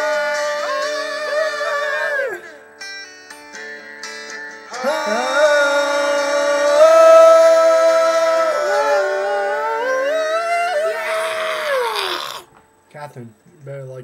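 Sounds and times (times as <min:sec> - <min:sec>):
acoustic guitar plucked: 0:00.0 - 0:10.0.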